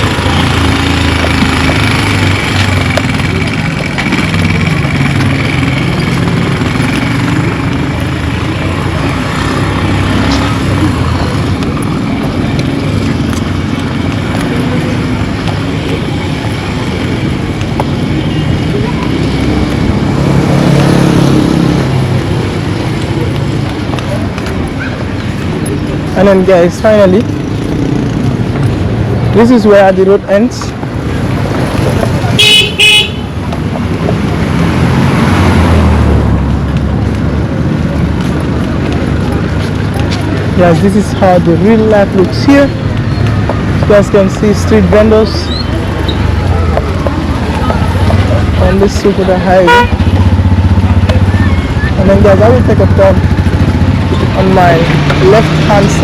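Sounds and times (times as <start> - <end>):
road traffic: 0.0 - 56.0
vehicle passing close by: 0.0 - 56.0.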